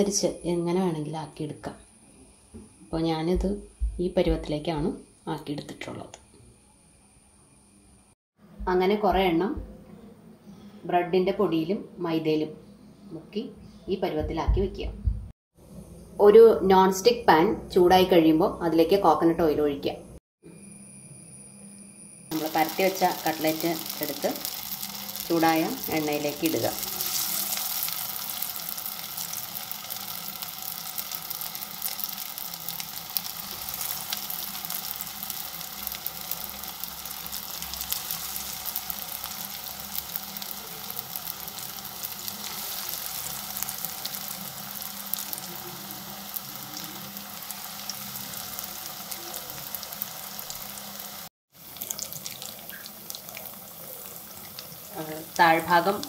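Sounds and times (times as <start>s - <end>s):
food sizzling in oil: 22.2s - 56.0s.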